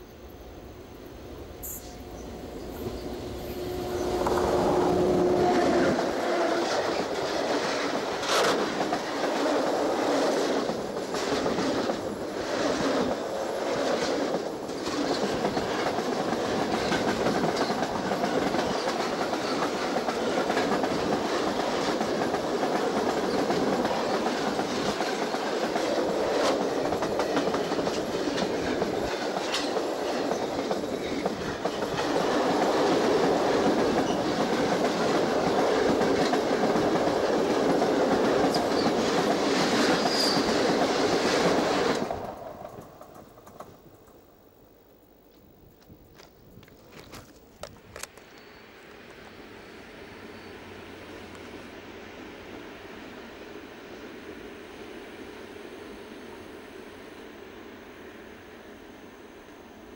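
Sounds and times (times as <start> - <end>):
train wheels rattling on rails: 0.0 - 44.3.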